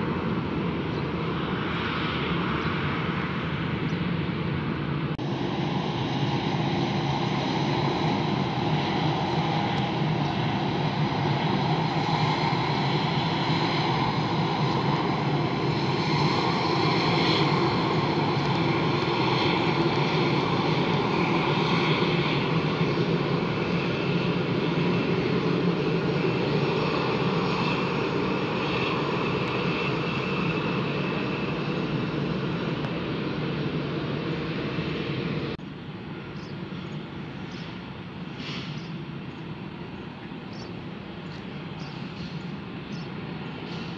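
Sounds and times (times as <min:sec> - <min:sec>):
jet engines high whine: 0:00.0 - 0:43.9.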